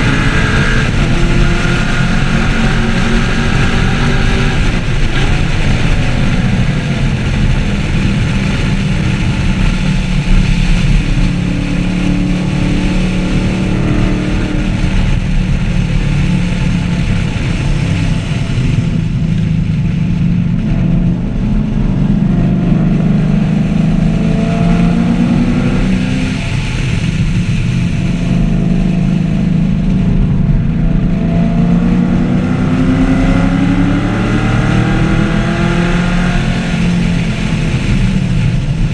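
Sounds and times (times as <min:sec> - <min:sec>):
car engine accelerating: 0:00.0 - 0:38.9
road and wind noise: 0:00.0 - 0:38.9.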